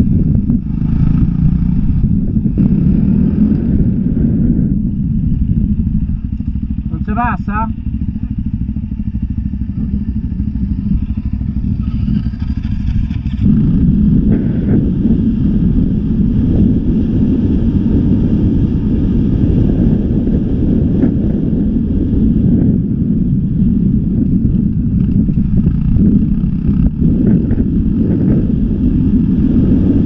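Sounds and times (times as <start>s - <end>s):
dirt bike engine: 0.0s - 30.0s.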